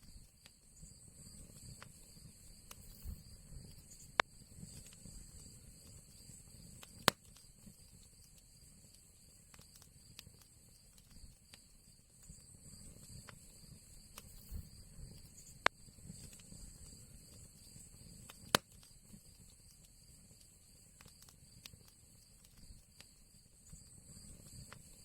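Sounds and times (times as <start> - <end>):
fire crackles: 0.0 - 25.0
flames fluttering: 0.0 - 25.0
sharp loud pops of fire: 2.7 - 3.2, 6.8 - 7.4.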